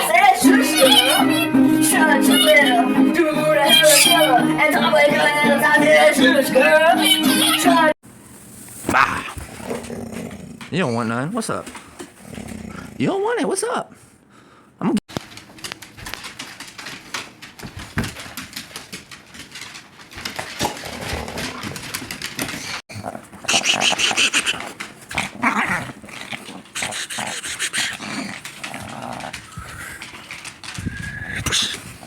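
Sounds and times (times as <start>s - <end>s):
dog growling: 8.9s - 11.2s, 12.1s - 13.1s, 20.6s - 21.9s, 22.9s - 32.0s
scuffling and scrabbling: 15.1s - 32.0s.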